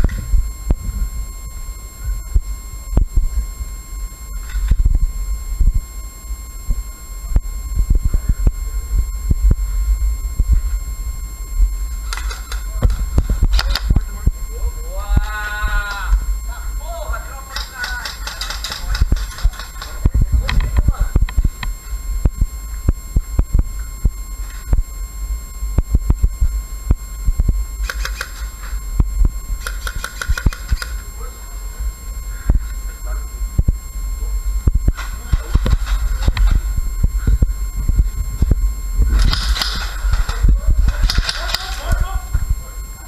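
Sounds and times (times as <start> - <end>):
microphone handling thumps: 0.0 - 3.8, 4.4 - 5.9, 6.6 - 14.5, 19.0 - 31.0, 32.3 - 42.7
high-pitched electronic whine: 0.0 - 43.0
steady low rumble: 0.0 - 43.0
sharp clicks or snaps: 27.8 - 28.5, 29.6 - 30.9.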